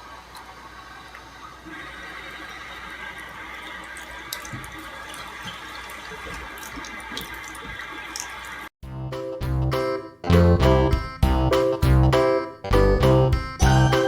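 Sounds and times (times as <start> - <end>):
tap water running into sink: 0.0 - 8.7
plucked bouncy music: 8.8 - 14.0.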